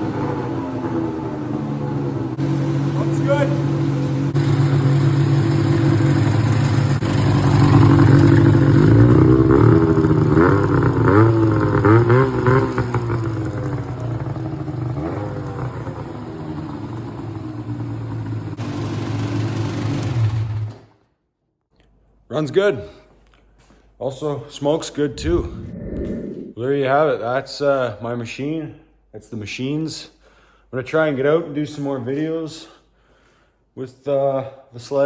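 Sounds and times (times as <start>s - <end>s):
snowmobile engine idling and revving: 0.0s - 20.6s.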